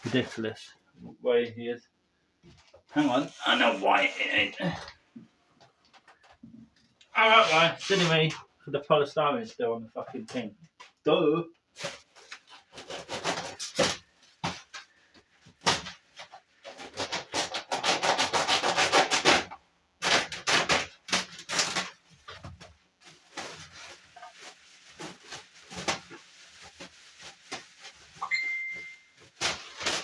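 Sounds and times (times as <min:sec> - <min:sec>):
polystyrene scraping and squeaking: 0:02.9 - 0:05.0, 0:07.2 - 0:08.5, 0:11.7 - 0:30.0.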